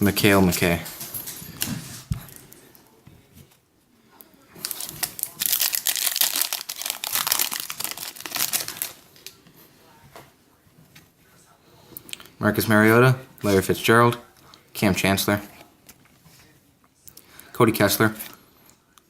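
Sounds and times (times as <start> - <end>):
wrapper tearing and crinkling: 4.6 - 9.4.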